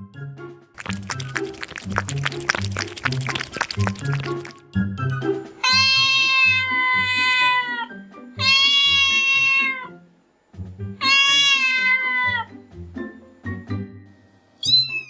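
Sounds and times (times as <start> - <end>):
cat meowing: 5.6 - 9.9, 11.0 - 12.5
background music with steady beat: 10.5 - 10.9.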